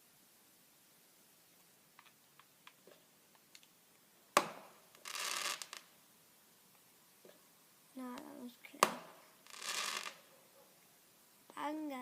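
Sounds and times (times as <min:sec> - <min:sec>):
crackling hiss: 0:00.0 - 0:12.0
faint clicks: 0:02.0 - 0:03.7
firework bang: 0:04.4 - 0:05.8, 0:08.8 - 0:10.2.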